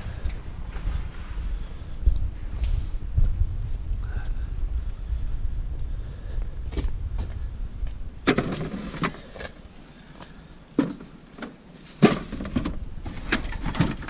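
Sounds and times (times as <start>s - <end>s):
low rumble: 0.0s - 9.8s
objects knocking and clattering: 10.8s - 14.0s.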